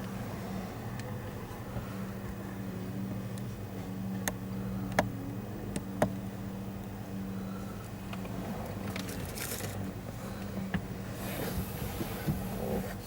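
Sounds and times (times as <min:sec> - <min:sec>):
vehicle engine idling: 0:00.0 - 0:13.0
sharp clicks: 0:04.2 - 0:05.1.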